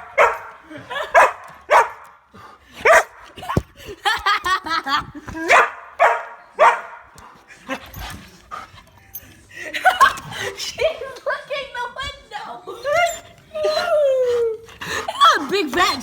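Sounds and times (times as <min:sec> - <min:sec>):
dog barking: 0:00.0 - 0:02.1, 0:02.8 - 0:03.2, 0:05.5 - 0:07.1
dog yipping: 0:00.1 - 0:00.5.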